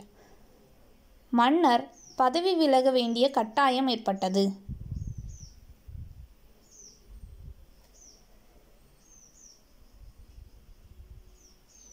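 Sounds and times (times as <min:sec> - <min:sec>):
small bird chirping: 0:01.8 - 0:02.5, 0:04.7 - 0:11.9.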